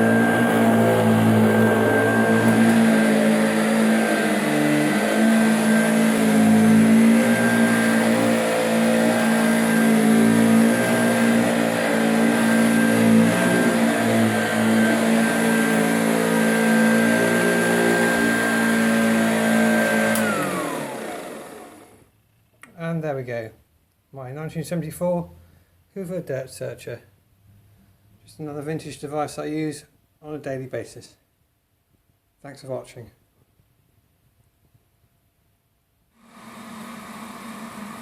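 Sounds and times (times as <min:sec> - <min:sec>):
vacuum cleaner motor whine: 0:00.0 - 0:22.1, 0:36.2 - 0:38.0.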